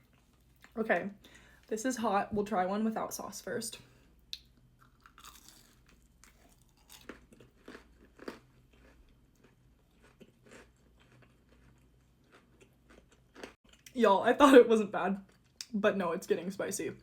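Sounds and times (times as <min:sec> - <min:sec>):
person crunching and chewing food: 0:04.3 - 0:14.0.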